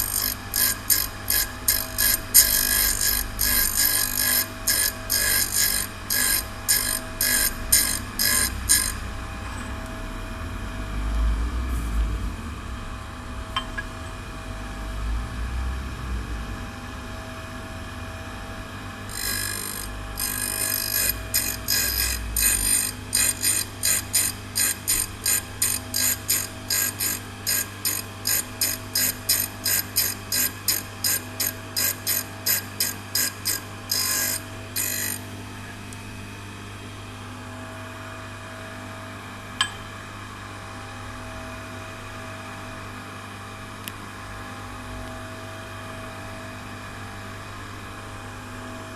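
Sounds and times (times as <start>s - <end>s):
cutter rasping against wheel: 0.0s - 9.0s, 19.1s - 35.2s
grinder motor humming: 0.0s - 10.3s, 19.0s - 35.8s.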